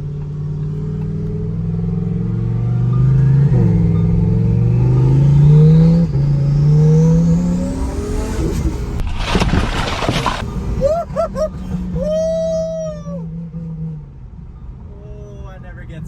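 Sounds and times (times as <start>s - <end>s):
car engine accelerating hard: 0.0s - 9.0s.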